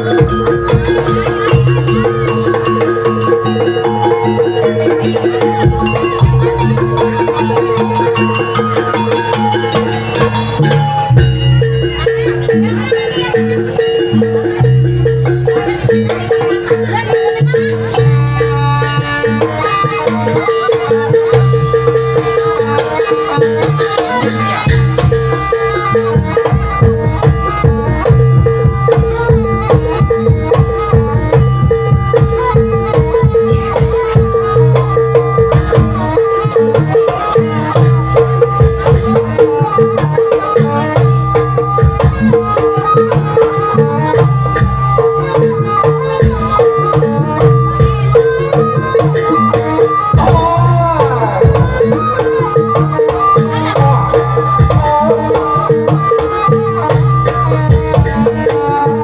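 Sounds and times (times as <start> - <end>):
metallophone tones: 0.0 - 19.4
hand drums beating: 0.0 - 59.0.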